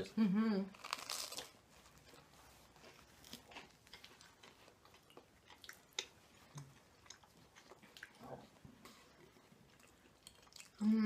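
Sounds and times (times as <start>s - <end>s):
faint chewing: 0.7s - 11.0s.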